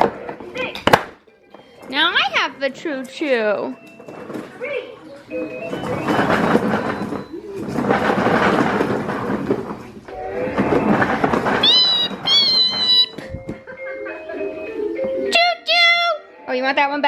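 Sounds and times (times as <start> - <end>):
toy train rattling across floor: 5.3 - 13.4.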